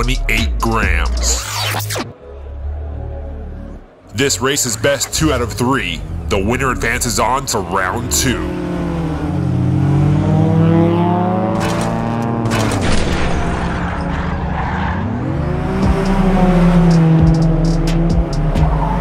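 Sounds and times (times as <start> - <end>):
race car engine sound effect: 4.1 - 19.0.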